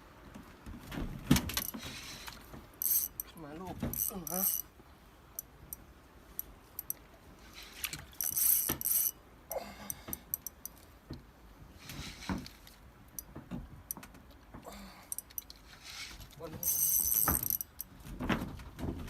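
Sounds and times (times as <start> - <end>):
fishing reel clicking: 2.8 - 3.3, 3.9 - 4.6, 8.2 - 9.1, 16.6 - 17.8.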